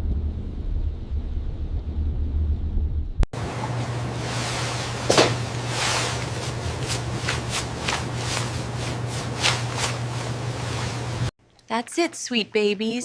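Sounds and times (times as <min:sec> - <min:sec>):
low hum: 0:00.0 - 0:11.3
steady hiss: 0:03.4 - 0:11.3.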